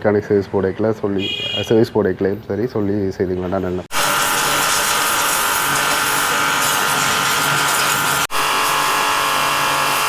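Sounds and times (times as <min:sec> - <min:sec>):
pressure washer running: 0:03.9 - 0:10.0.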